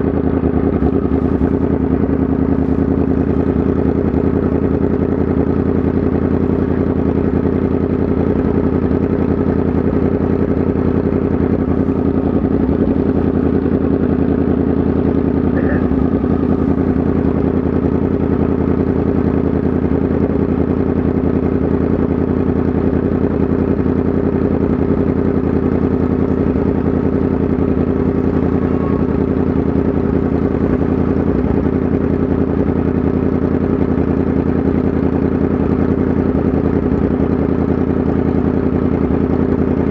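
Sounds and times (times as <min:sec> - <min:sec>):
motorcycle engine running steadily: 0:00.0 - 0:39.9.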